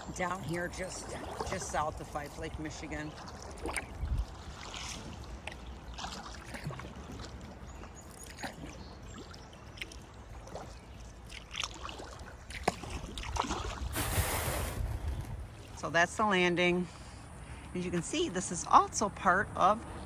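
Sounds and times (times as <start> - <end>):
paddle splashing in water: 0.0 - 15.8.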